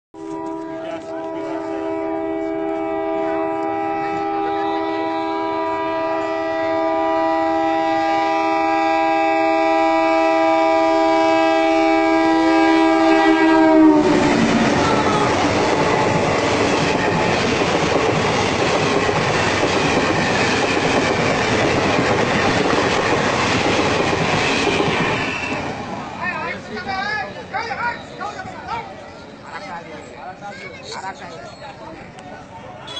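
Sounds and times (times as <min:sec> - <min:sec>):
train horn blast: 0:00.2 - 0:16.6
train coaches wheel-and-rail noise: 0:00.2 - 0:32.9.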